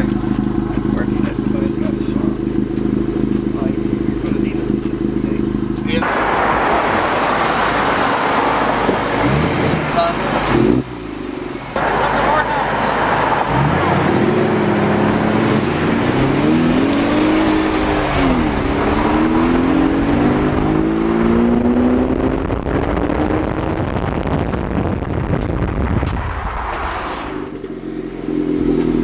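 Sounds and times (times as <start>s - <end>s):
car engine revving: 0.0s - 29.0s
steady rushing noise: 5.2s - 10.7s, 11.7s - 27.7s.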